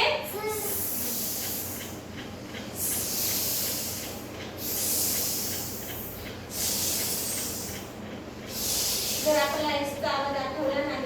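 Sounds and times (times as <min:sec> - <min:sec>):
person hissing: 0:06.5 - 0:07.8, 0:08.5 - 0:09.6.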